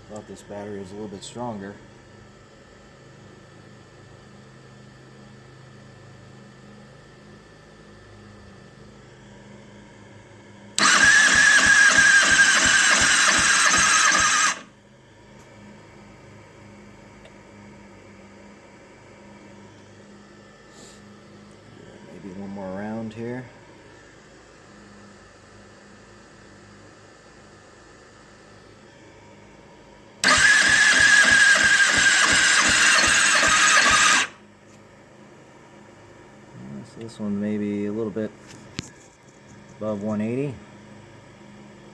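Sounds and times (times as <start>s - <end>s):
motorcycle engine cranking: 10.8s - 14.7s, 30.2s - 34.4s.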